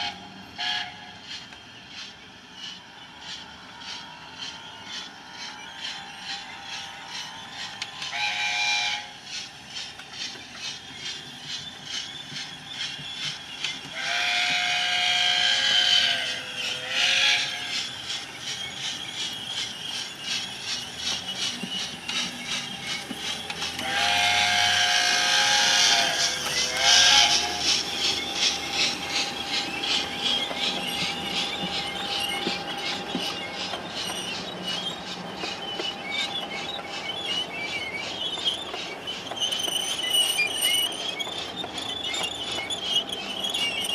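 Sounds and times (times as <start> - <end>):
steady clicking beat: 25.9 - 39.2.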